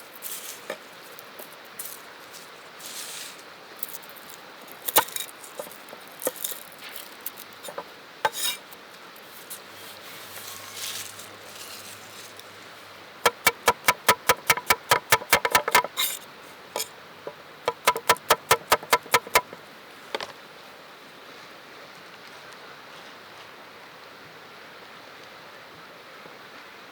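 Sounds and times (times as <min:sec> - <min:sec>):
knife clicks on cutting board: 0:13.3 - 0:16.0, 0:17.7 - 0:19.6
knife chopping on cutting board: 0:13.3 - 0:16.2, 0:17.7 - 0:19.6.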